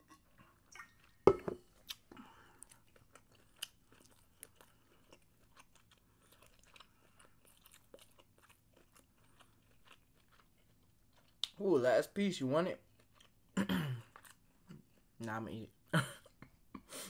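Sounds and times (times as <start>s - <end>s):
chewing food: 0.1s - 11.6s, 12.8s - 15.2s.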